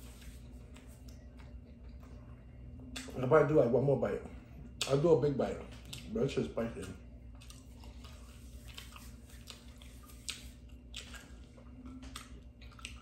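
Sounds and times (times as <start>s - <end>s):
person chewing food: 0.0s - 3.2s, 5.7s - 6.2s, 6.8s - 13.0s
steady low hum: 0.0s - 13.0s.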